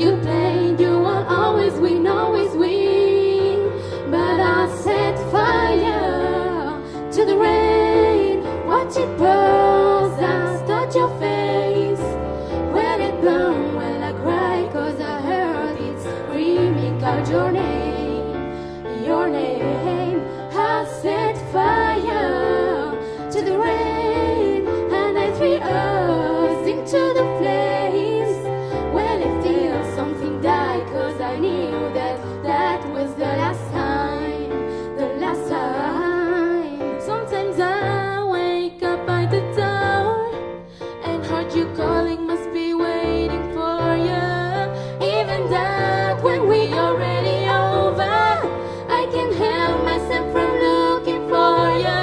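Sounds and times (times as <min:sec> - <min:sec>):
two singers in vocal duet: 0:00.0 - 0:52.0.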